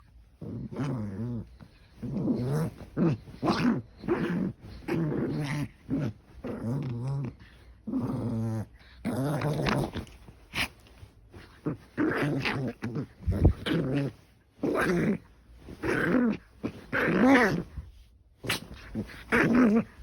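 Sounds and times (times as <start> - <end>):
dog growling: 0.4 - 10.7, 11.5 - 15.2, 18.5 - 20.0.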